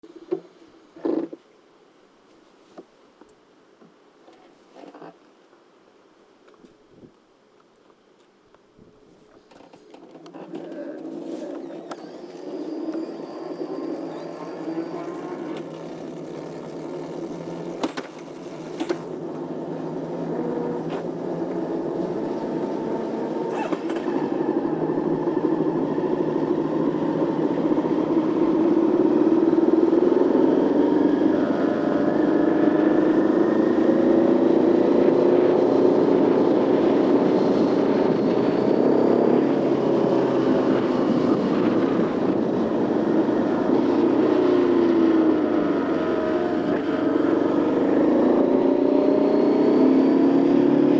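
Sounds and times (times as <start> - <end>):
motorcycle engine: 10.3 - 50.9.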